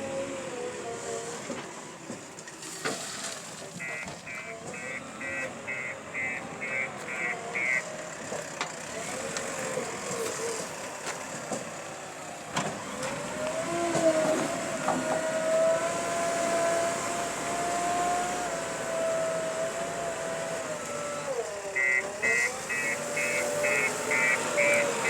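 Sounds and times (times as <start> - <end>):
diesel engine running: 3.3 - 25.0
reversing alarm beeps: 3.8 - 7.8, 21.8 - 25.0.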